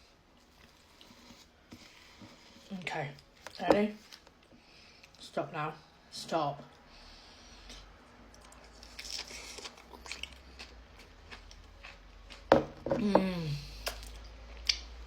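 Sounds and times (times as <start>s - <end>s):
person crunching and chewing: 8.3s - 12.7s.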